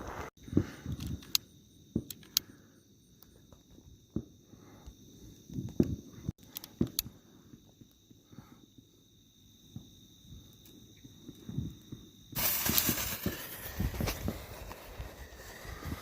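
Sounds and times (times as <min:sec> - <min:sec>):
crickets chirping: 0:00.0 - 0:16.0
sharp pops: 0:12.4 - 0:16.0.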